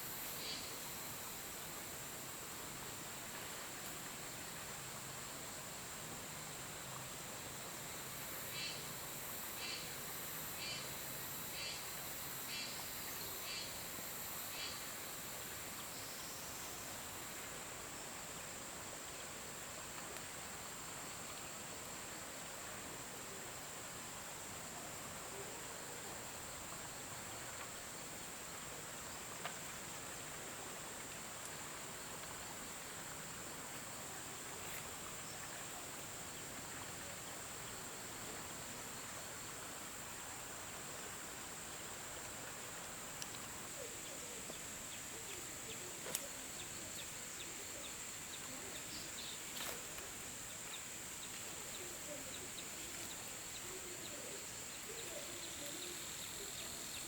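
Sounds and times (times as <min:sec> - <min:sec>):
insects droning: 0:00.0 - 0:57.0
outdoor ambience hiss: 0:00.0 - 0:57.0.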